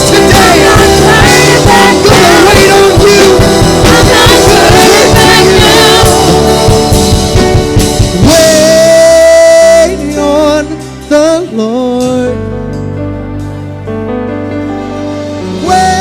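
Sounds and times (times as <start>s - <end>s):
person singing: 0.0s - 6.7s, 8.2s - 12.6s, 15.6s - 16.0s
gospel band with drums and guitar: 0.0s - 16.0s.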